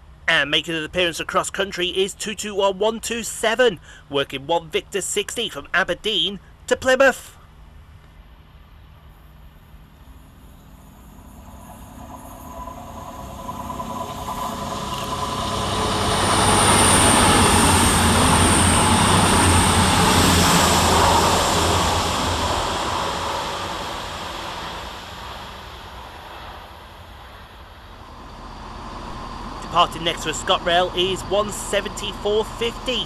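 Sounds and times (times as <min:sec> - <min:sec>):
diesel train passing: 0:07.7 - 0:33.0.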